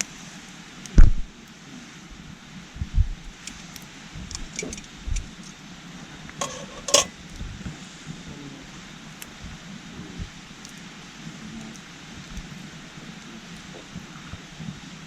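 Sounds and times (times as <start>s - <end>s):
campfire popping: 3.1s - 7.5s, 9.0s - 14.5s.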